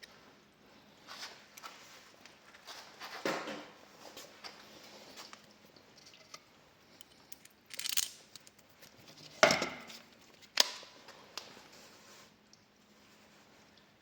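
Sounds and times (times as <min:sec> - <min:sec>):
scrape or rustle: 0:11.2 - 0:13.7.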